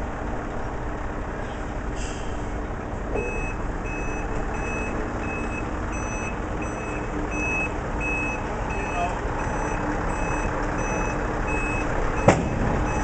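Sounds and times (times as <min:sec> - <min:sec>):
heavy truck engine rumble: 0:00.0 - 0:13.0
truck reversing alarm beeping: 0:03.2 - 0:13.0.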